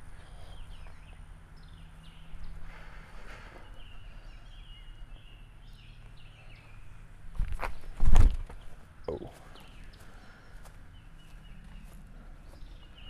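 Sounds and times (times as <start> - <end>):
birds chirping and whistling: 0.0 - 7.0, 7.7 - 13.0
low steady outdoor background: 0.0 - 13.0
rustle: 6.0 - 13.0.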